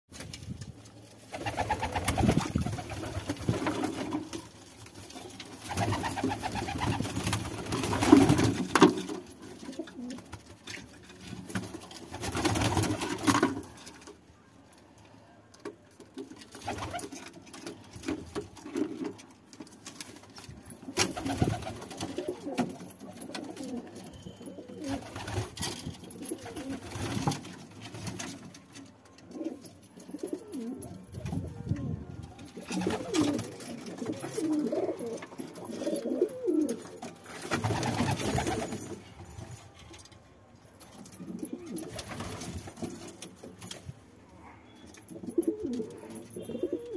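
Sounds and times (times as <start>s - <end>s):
pigeons cooing: 29.4s - 36.8s, 45.1s - 46.9s.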